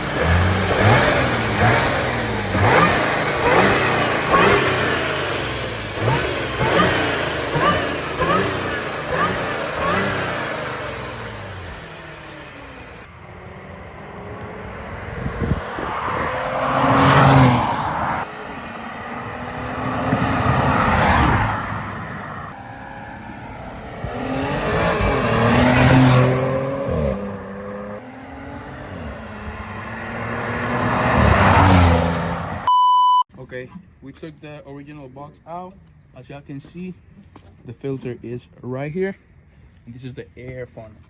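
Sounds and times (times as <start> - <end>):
car engine accelerating hard: 0.0 - 32.7.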